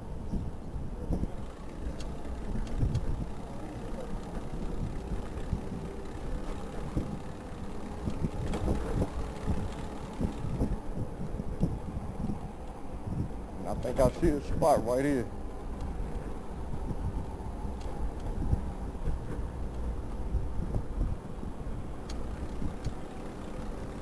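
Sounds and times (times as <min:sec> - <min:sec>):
city traffic: 0:00.0 - 0:24.0
electric bike road noise: 0:00.0 - 0:24.0
wind on microphone: 0:08.0 - 0:23.1.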